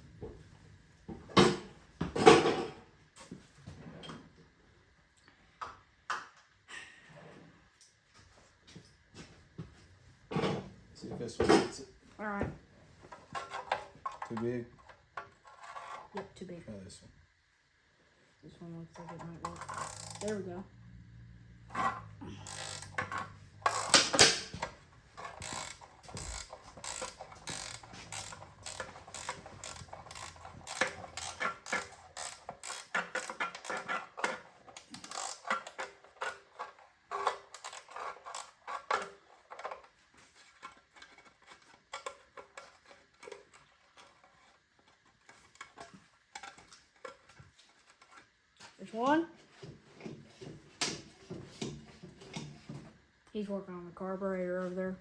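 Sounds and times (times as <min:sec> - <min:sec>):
ratchet wrench clicking: 0:19.6 - 0:20.4, 0:22.4 - 0:24.6, 0:25.2 - 0:35.9.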